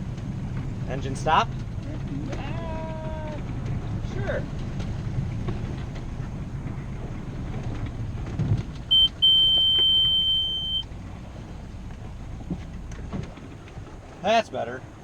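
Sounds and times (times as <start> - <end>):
boat engine humming: 0.0 - 15.0
high alarm beep: 8.9 - 10.8.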